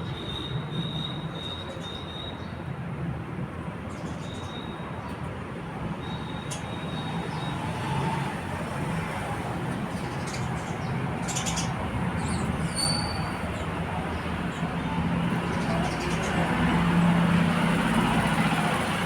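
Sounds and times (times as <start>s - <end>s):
sparrows chirping: 0.0s - 2.7s, 3.9s - 5.3s, 5.9s - 19.0s
traffic rumble and hiss: 0.0s - 19.0s.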